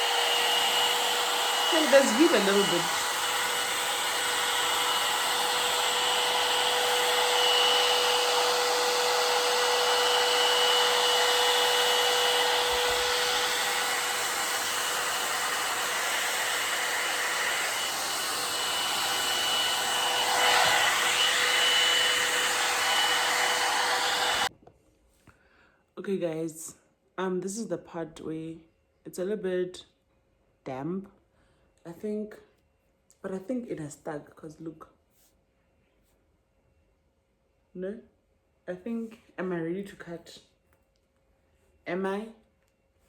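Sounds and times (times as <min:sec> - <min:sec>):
hair dryer running: 0:00.0 - 0:24.5.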